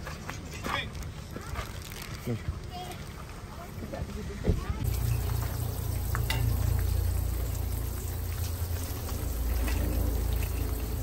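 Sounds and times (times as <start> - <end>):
tap water running into metal sink: 4.8 - 11.0
water swirling down drain: 4.9 - 11.0.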